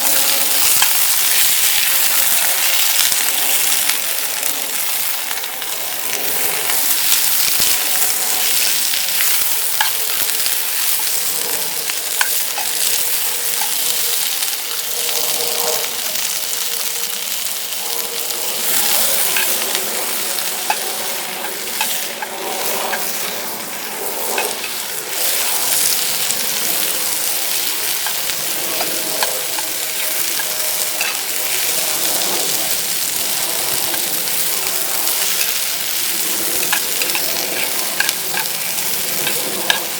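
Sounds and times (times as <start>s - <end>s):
food sizzling in a pan: 0.0s - 39.9s
utensil clicking and scraping: 18.0s - 39.9s.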